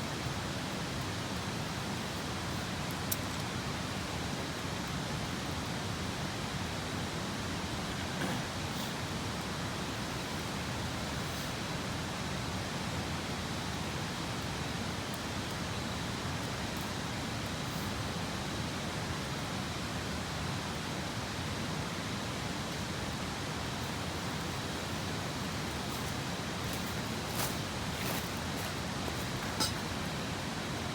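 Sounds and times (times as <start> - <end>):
river flowing: 0.0 - 4.8, 8.6 - 14.2, 22.4 - 30.9
wood fire crackles: 0.0 - 6.6, 22.2 - 30.9.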